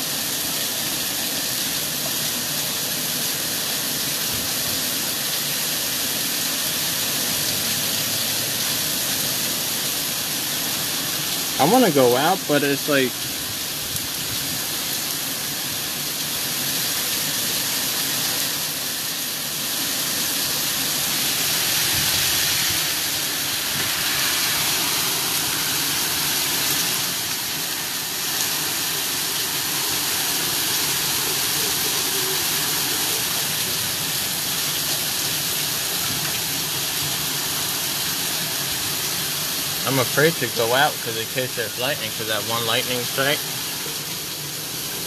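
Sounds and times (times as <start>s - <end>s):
heavy rain pouring: 0.0s - 45.0s.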